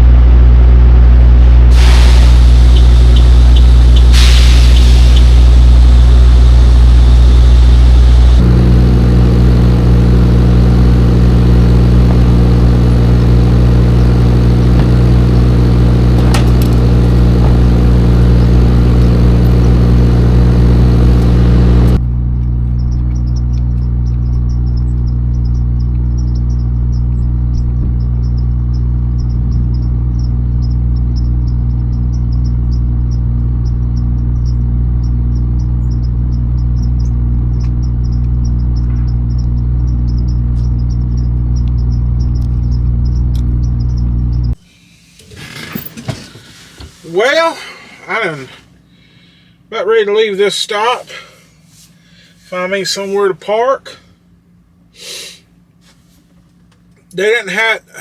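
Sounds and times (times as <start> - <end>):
diesel truck engine humming: 0.0 - 58.0
hiss: 1.7 - 5.7, 55.0 - 55.5
insects chirping: 1.7 - 21.4, 22.0 - 55.8.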